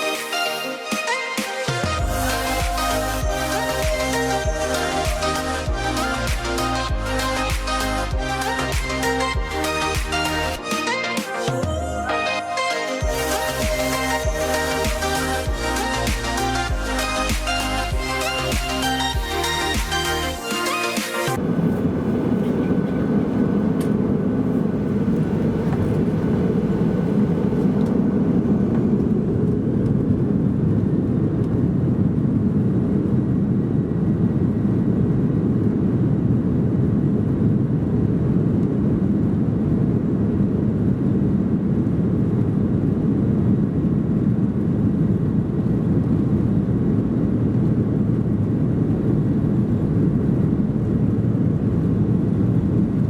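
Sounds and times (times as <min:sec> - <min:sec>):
jet engine roar in cabin: 0:20.7 - 0:53.0.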